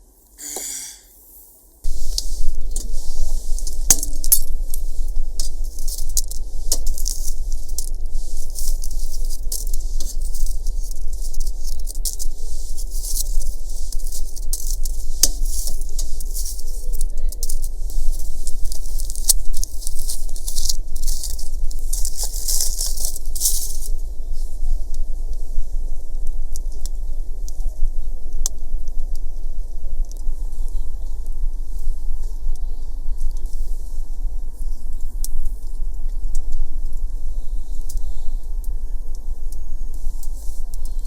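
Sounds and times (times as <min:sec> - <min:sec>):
fire popping: 0:01.8 - 0:41.0
food sizzling over wood fire: 0:01.9 - 0:24.4.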